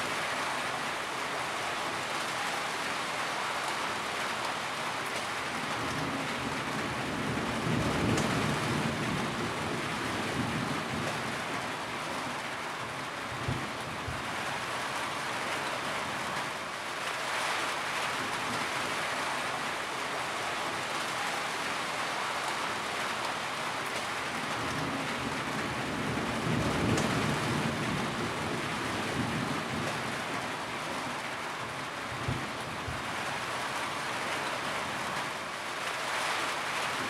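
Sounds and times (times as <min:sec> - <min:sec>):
steady rain: 0:00.0 - 0:37.0
low rumble of thunder: 0:05.7 - 0:11.7, 0:24.5 - 0:30.5.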